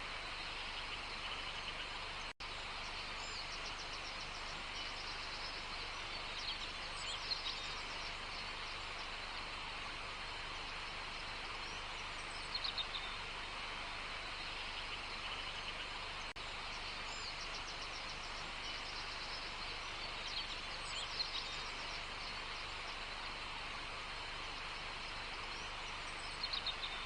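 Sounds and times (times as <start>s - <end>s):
birds chirping: 0.0s - 27.0s
steady outdoor hiss: 0.0s - 27.0s.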